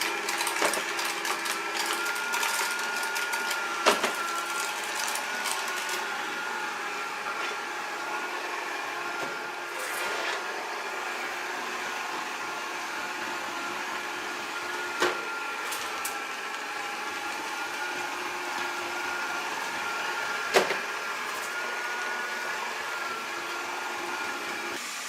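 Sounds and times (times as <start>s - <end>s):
robot vacuum suction whir: 0.0s - 25.0s.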